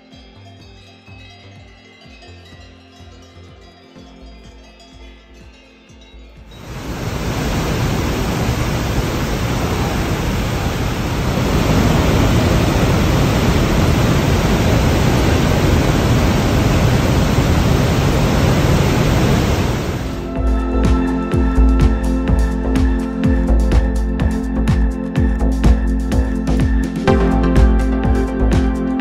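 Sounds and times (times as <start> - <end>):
waterfall rushing: 6.5 - 21.2.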